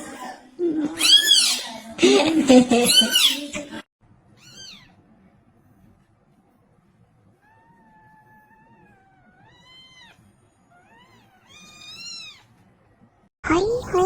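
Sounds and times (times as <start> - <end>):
cat meowing: 4.4 - 5.0, 7.4 - 12.6.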